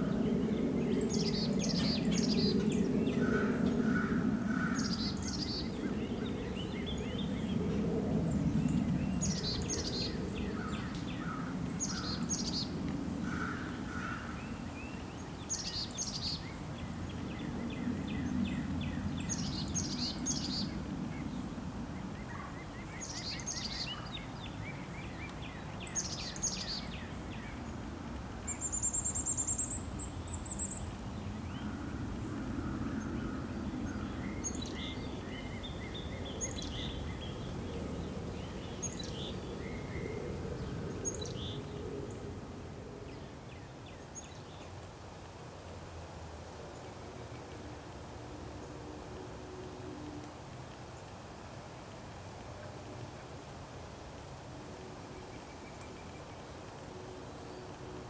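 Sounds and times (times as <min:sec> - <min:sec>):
small birds chirping: 0:08.4 - 0:21.4, 0:22.2 - 0:27.8.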